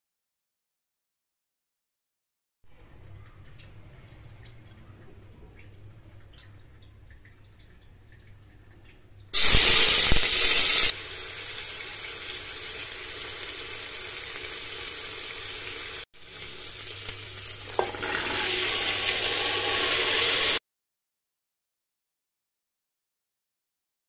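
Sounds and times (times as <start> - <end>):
food sizzling in hot oil: 9.4 - 20.6.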